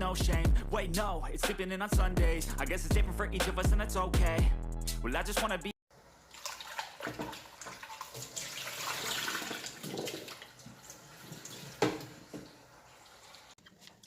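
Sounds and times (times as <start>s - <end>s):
water running and splashing: 6.2s - 13.6s.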